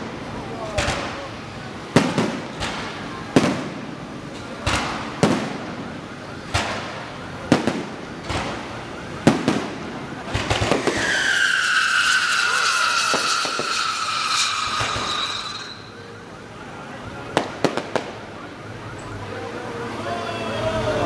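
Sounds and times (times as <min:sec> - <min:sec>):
fireworks bangs: 0:00.0 - 0:16.4, 0:17.1 - 0:18.5
fireworks cracks: 0:00.0 - 0:16.4, 0:17.2 - 0:18.4
falling whistle: 0:10.7 - 0:16.2.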